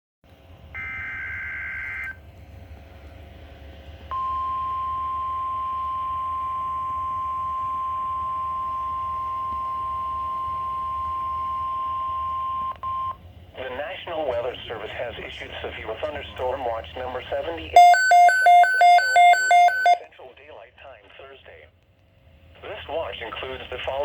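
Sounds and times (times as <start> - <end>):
steady warning alarm tone: 17.8 - 20.0.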